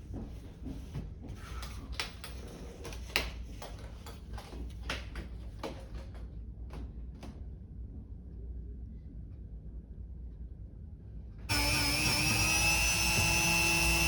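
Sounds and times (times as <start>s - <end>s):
steady low hum: 7.7s - 14.0s.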